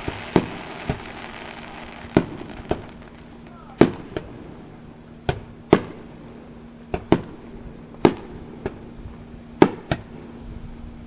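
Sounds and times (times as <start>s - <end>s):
fireworks bangs: 0.0s - 10.4s.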